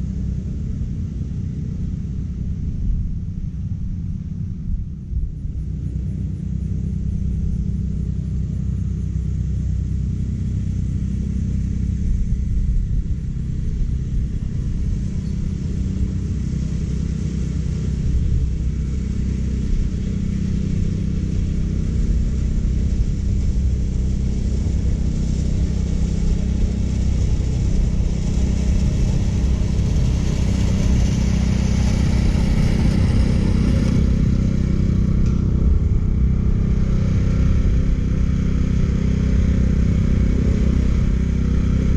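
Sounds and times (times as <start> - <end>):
mower engine drone: 0.0 - 41.9
mower reel whirring: 13.9 - 41.9.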